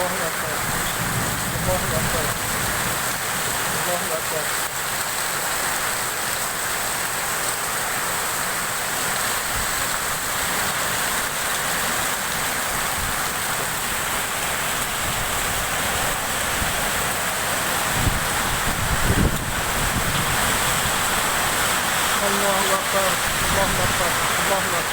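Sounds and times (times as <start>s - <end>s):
heavy rain downpour: 0.0s - 24.9s
wind buffeting microphone: 12.8s - 21.6s.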